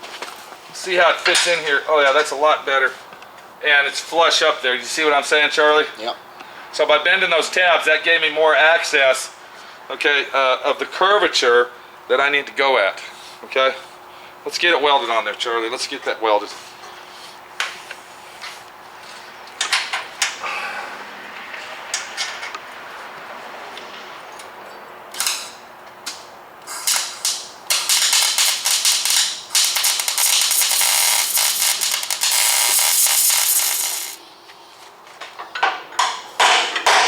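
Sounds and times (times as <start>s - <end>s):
welder crackling and sizzling: 26.8s - 34.2s.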